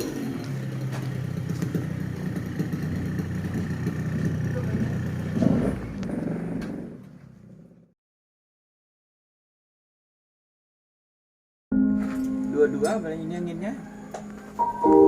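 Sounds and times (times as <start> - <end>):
two-stroke motorcycle engine running: 0.0 - 7.0.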